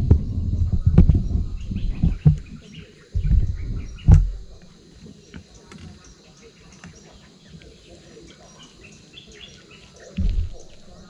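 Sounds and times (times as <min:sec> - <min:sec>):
sharp knocks: 0:00.0 - 0:04.7, 0:10.2 - 0:11.0
low rumbling thumps: 0:00.0 - 0:04.8, 0:10.2 - 0:11.0
birds chirping: 0:00.0 - 0:11.0.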